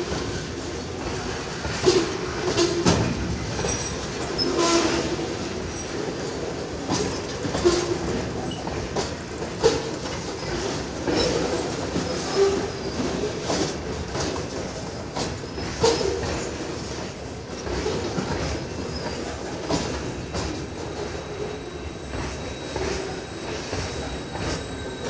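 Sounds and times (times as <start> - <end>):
freight train wheels rumbling on rail: 0.0 - 25.0.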